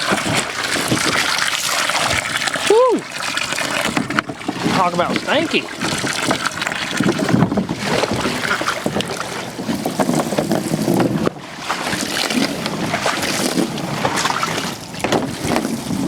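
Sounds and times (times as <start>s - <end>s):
water running and splashing: 0.0s - 16.0s.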